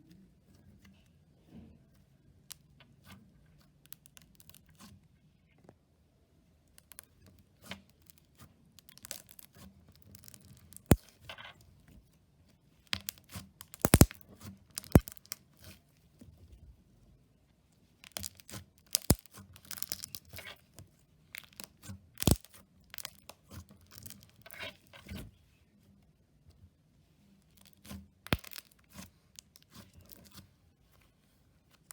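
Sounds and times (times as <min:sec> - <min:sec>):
slime squishing crackles and pops: 0:08.8 - 0:11.1, 0:12.9 - 0:15.4, 0:18.0 - 0:20.5, 0:21.4 - 0:24.4, 0:28.2 - 0:29.6.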